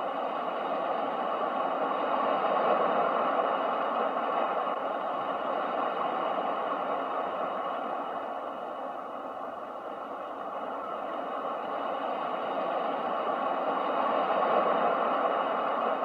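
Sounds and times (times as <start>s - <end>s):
ocean waves washing: 0.0s - 16.0s.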